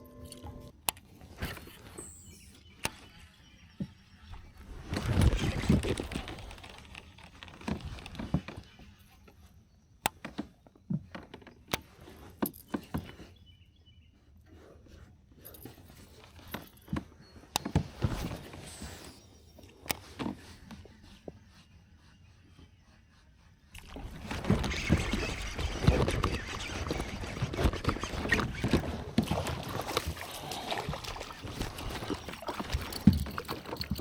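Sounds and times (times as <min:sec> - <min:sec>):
fishing gear knocking and clattering: 0:27.6 - 0:34.0.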